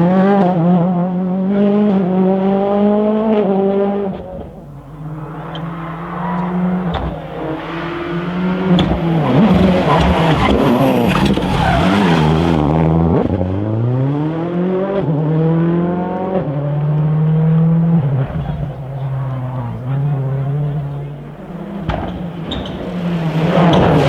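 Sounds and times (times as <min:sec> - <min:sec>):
rally car engine revving: 0:00.0 - 0:24.0
engine pops: 0:02.8 - 0:12.6, 0:16.8 - 0:24.0.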